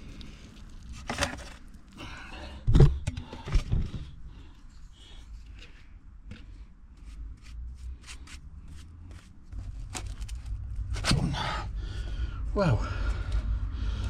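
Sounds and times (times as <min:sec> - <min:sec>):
plastic on plastic clicks and scrapes: 0:00.0 - 0:02.0, 0:02.6 - 0:11.1
low rumble: 0:09.6 - 0:14.0.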